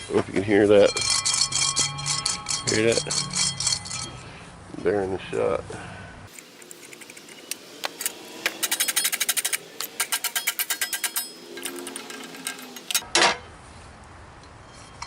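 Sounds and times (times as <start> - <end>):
ball bearing rattling: 0.8 - 4.2, 6.3 - 13.0.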